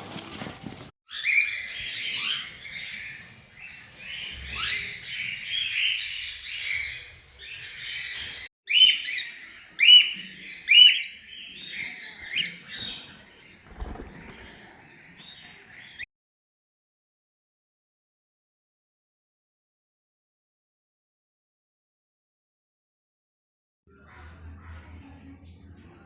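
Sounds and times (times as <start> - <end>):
birds chirping: 0.4 - 16.1, 23.9 - 26.0
loud sharp bird calls: 1.1 - 16.1.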